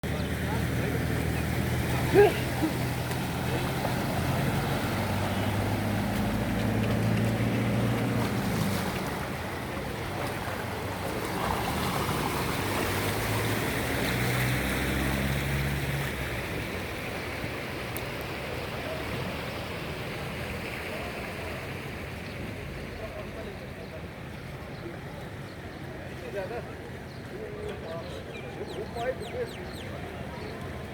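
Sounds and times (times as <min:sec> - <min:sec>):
vehicle engine humming: 0:00.0 - 0:17.4
water rushing and splashing: 0:00.0 - 0:27.6.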